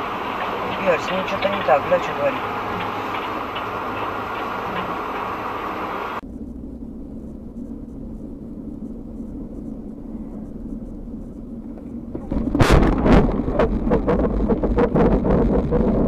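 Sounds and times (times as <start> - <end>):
loud rush of noise: 0.0 - 6.2
car road and engine rumble: 0.0 - 16.0.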